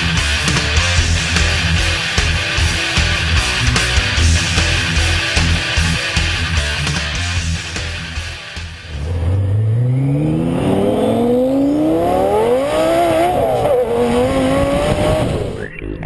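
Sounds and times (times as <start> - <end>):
car engine accelerating hard: 8.9 - 15.7.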